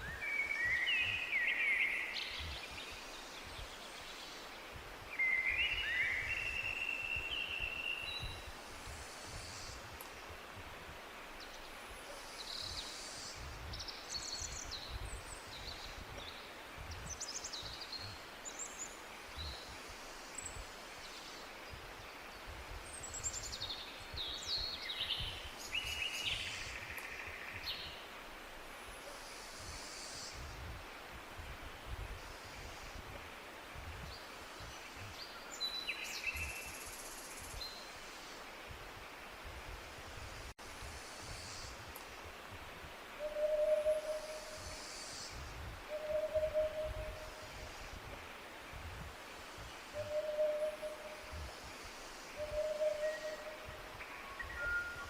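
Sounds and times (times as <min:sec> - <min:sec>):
birds chirping and trilling: 0:52.3 - 0:55.0.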